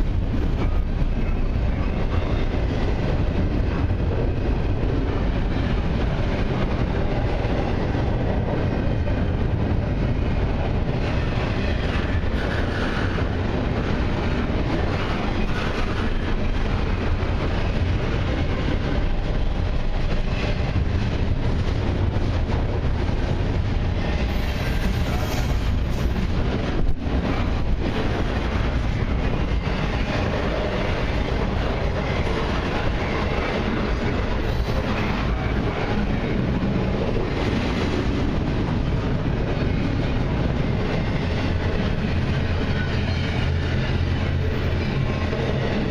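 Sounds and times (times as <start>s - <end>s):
train wheels rolling on rails: 0.0s - 45.9s.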